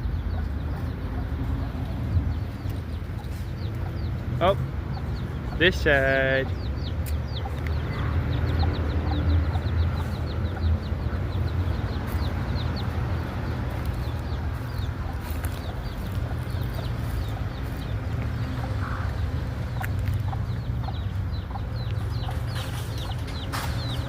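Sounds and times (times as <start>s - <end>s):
chicks peeping: 0.0s - 24.0s
steady low rumble: 6.4s - 24.0s.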